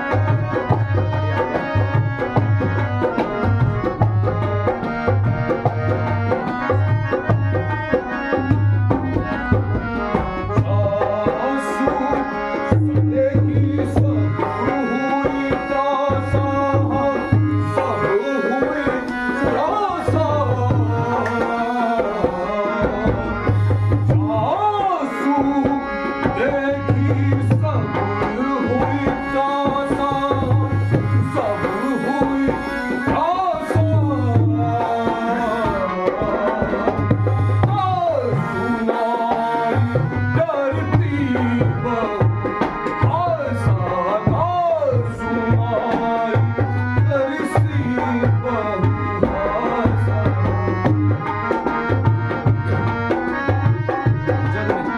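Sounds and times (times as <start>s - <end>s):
tabla playing rhythm: 0.0s - 54.9s.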